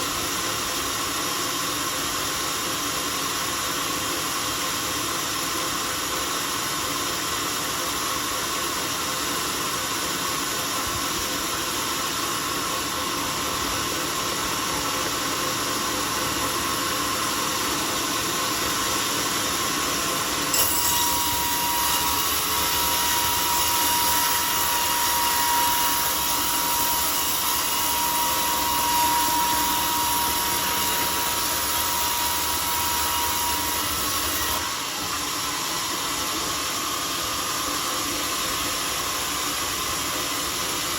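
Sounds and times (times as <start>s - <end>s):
sawmill running: 0.0s - 40.9s
saw blade cutting log: 14.8s - 37.4s.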